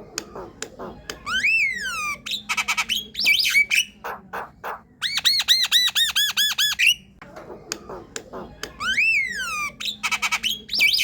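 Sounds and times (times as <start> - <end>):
bird whistling and chattering: 0.2 - 7.1, 7.9 - 11.0.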